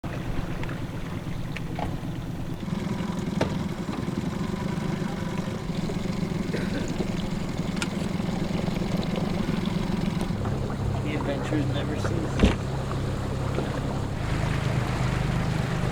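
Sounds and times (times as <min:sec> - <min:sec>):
outboard motor idling: 0:00.0 - 0:15.9
faint clicks: 0:06.8 - 0:09.4.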